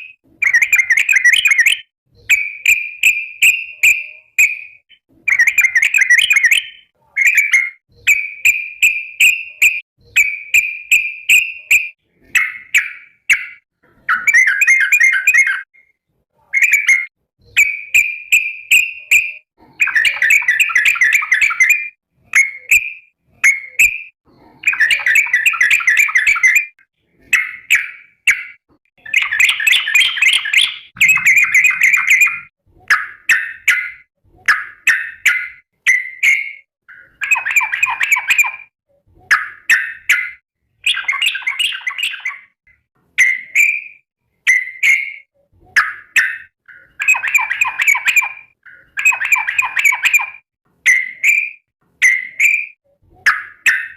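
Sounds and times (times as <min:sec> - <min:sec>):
bird bubbly chattering call: 0:29.2 - 0:32.5.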